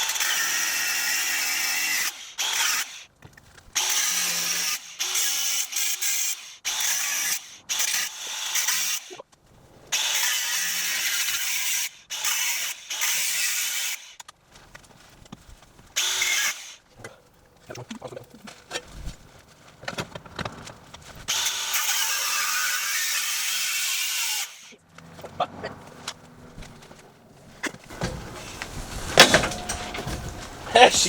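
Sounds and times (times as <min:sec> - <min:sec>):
angle grinder cutting metal: 0:00.0 - 0:03.0, 0:03.8 - 0:09.2, 0:10.0 - 0:14.2, 0:21.3 - 0:24.8
metal clanks and knocks: 0:25.2 - 0:31.0.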